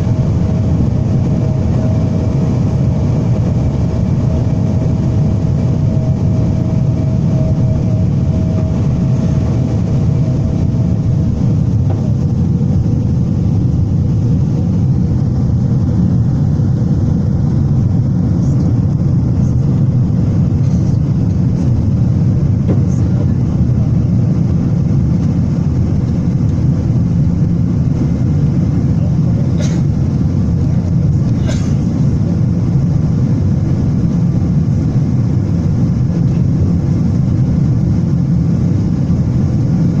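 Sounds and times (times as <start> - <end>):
thin engine whine: 0.0 - 14.4
jet engines rumbling in cabin: 0.0 - 40.0.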